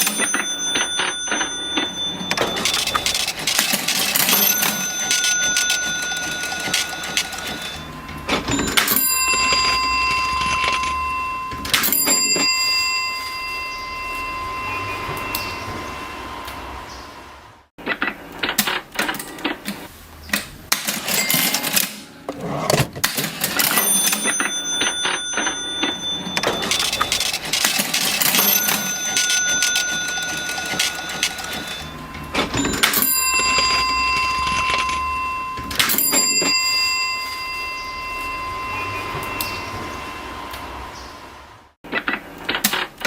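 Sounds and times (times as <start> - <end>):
cash register keys clacking: 0.0 - 13.1, 20.7 - 39.6
cash register bell ringing: 0.0 - 16.4, 20.7 - 41.3.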